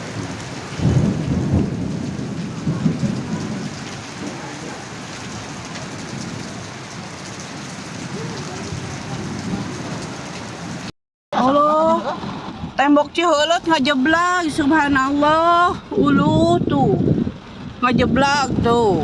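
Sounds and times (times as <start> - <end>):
heavy rain falling: 0.0 - 19.0
low rumbling: 11.4 - 19.0.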